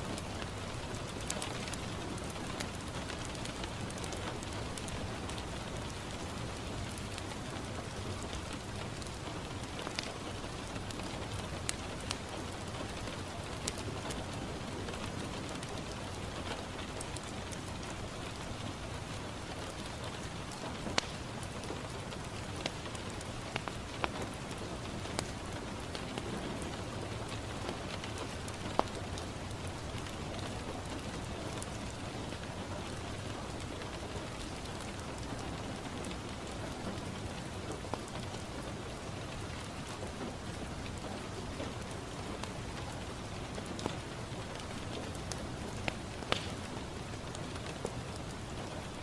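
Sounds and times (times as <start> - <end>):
rain on a window: 0.0 - 49.0
wood fire crackling: 0.0 - 49.0.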